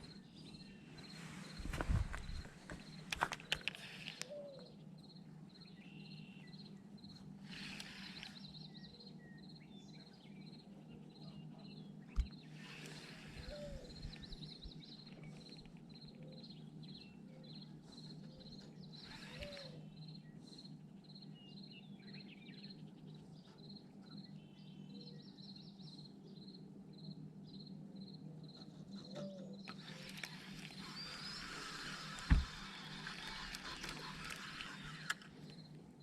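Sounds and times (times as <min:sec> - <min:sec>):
bird calls: 0:00.0 - 0:26.0, 0:28.3 - 0:35.8.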